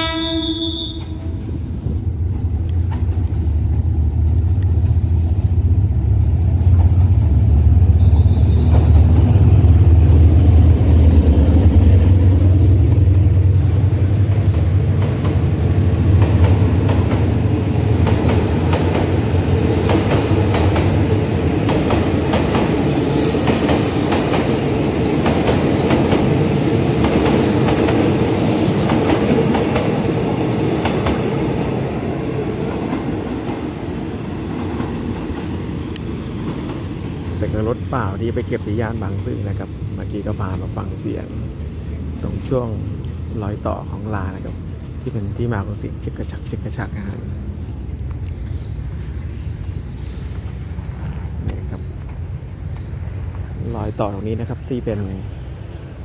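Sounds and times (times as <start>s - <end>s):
train horn: 0.0s - 1.5s
train rumbling past: 0.0s - 56.0s
wheels clacking over rail joints: 13.9s - 37.4s.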